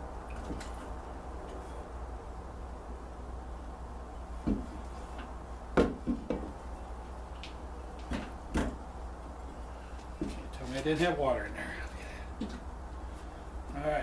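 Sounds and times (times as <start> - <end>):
steady low hum: 0.0 - 14.0
hard objects knocking and clunking: 4.4 - 6.6, 8.0 - 8.8.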